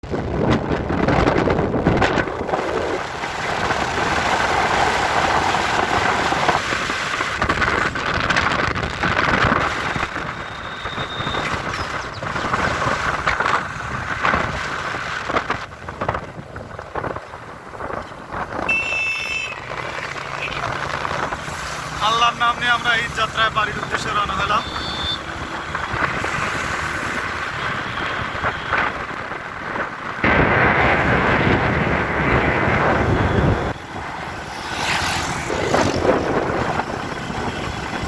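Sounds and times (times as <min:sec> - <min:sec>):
wind buffeting microphone: 0:00.0 - 0:18.9, 0:25.2 - 0:38.0
road and traffic noise: 0:00.0 - 0:38.0.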